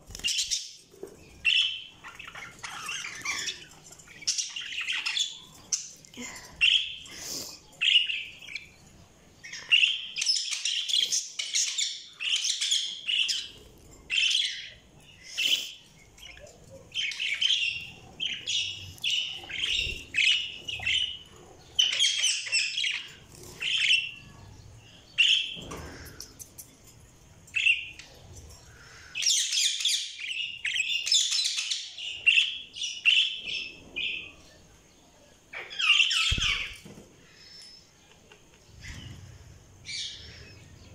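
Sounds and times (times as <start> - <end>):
budgerigars chirping and warbling: 0.1 - 6.0, 6.6 - 26.4, 27.5 - 34.3, 35.5 - 36.9.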